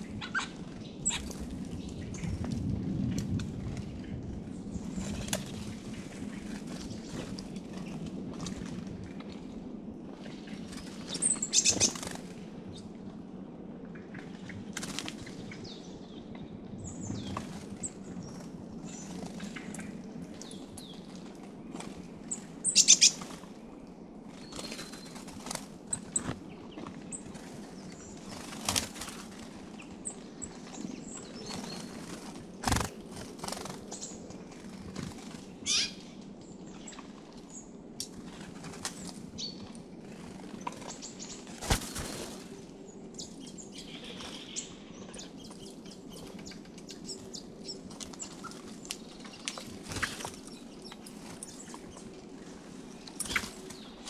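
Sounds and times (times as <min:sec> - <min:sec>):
songbirds chirping: 0:09.2 - 0:54.0
bird wingbeats: 0:10.6 - 0:12.4, 0:14.2 - 0:15.4, 0:24.3 - 0:36.0, 0:38.1 - 0:42.7, 0:44.1 - 0:54.0.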